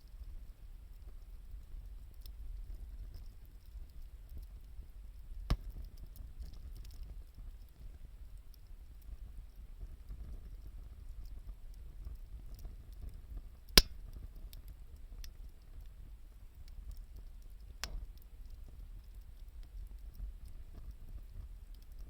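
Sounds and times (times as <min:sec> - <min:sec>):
wood fire crackling: 0:00.0 - 0:22.0
sharp fire pops: 0:05.4 - 0:06.6, 0:13.7 - 0:14.3, 0:17.8 - 0:18.2.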